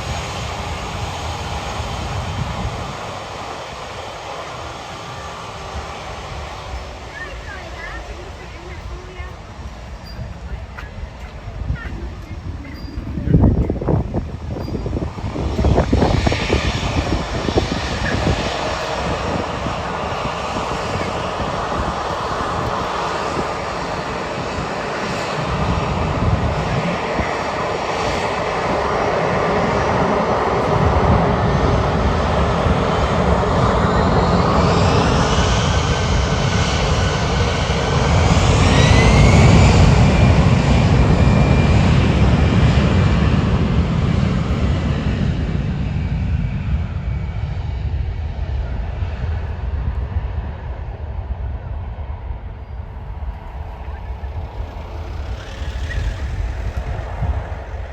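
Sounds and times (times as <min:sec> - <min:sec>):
high engine whine: 0:00.0 - 0:57.9
jet airliner passing: 0:00.0 - 0:57.9.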